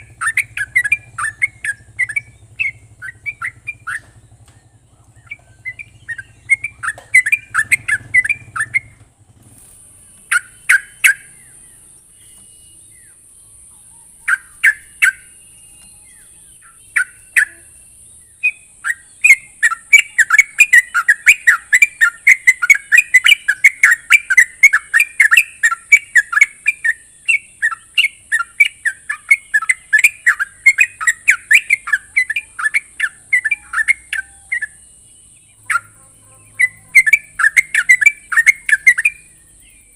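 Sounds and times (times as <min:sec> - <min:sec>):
bulbul chattering song: 0:00.0 - 0:39.9.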